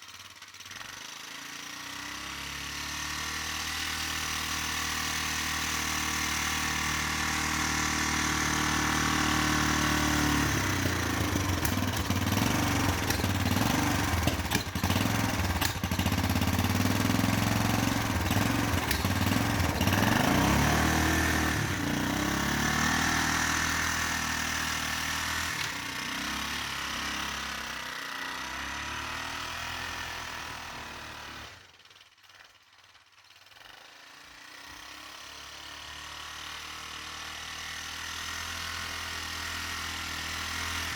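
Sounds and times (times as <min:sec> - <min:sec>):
quad bike engine revving: 0:00.0 - 0:32.4, 0:33.4 - 0:40.9.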